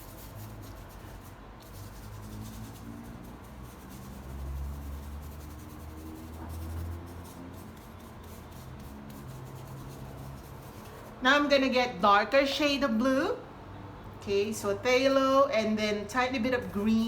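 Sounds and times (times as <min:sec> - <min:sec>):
paintbrush strokes on canvas: 0:00.0 - 0:11.2.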